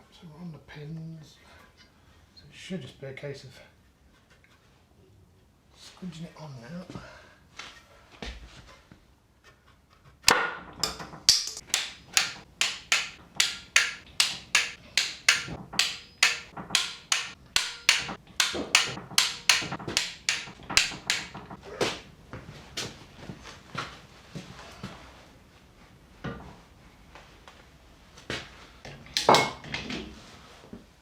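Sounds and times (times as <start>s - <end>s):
sharp hammer taps: 10.8s - 21.6s.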